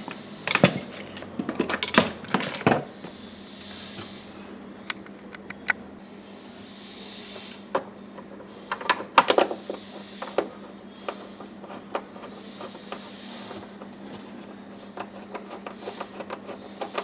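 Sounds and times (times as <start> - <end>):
light clicks and knocks of tools: 0.0 - 2.8.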